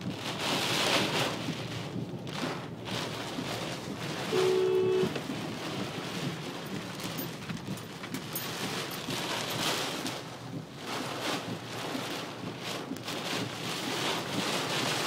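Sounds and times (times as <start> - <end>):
storm wind and rain: 0.0 - 15.0
two-note horn blast: 4.3 - 5.2.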